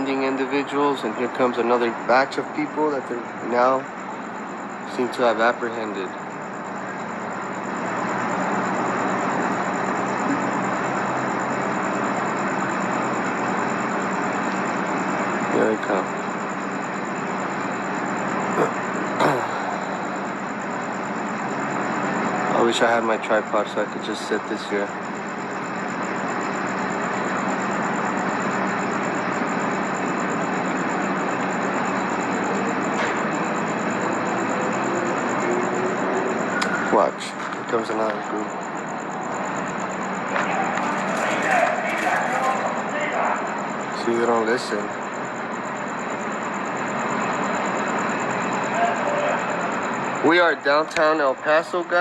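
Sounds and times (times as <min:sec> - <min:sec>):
vehicle engines idling: 0:00.0 - 0:52.0.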